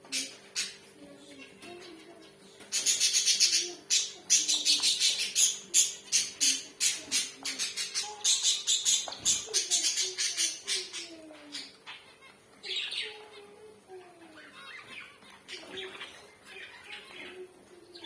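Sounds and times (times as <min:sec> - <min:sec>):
finches calling: 0:01.9 - 0:13.6.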